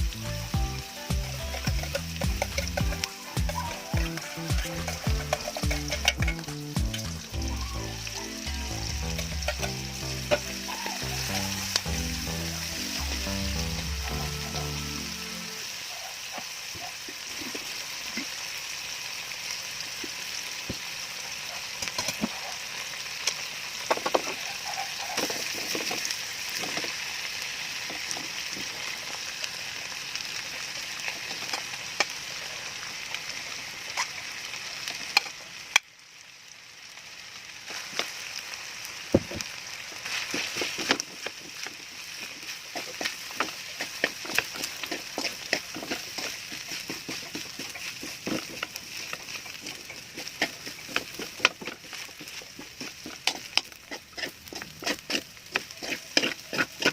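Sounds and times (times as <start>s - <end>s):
food sizzling in a frying pan: 0.0s - 56.9s
utensil scraping a pan: 1.2s - 7.2s, 8.9s - 13.3s, 40.1s - 56.9s.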